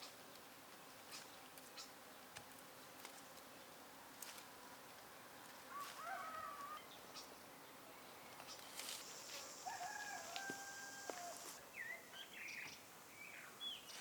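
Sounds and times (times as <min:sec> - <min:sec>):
rooster crowing: 0:05.7 - 0:06.8, 0:09.4 - 0:11.6.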